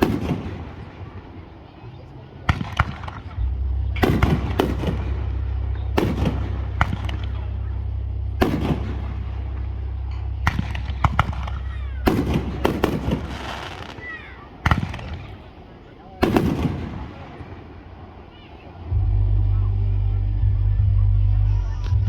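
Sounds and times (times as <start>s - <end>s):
fireworks bangs: 0.0s - 19.0s
fireworks crackling: 0.0s - 19.0s
low rumble: 2.4s - 13.6s, 18.8s - 22.0s.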